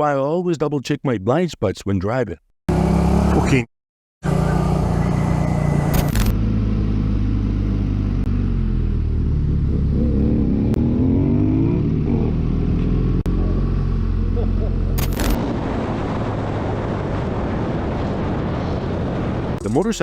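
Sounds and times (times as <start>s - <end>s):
road noise: 2.7s - 20.0s
vehicle engine running: 4.2s - 11.6s, 12.7s - 17.5s.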